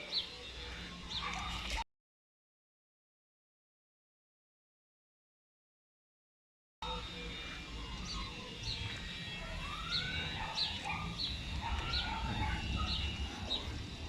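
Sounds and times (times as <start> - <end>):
rising and falling bird calls: 6.8 - 14.0.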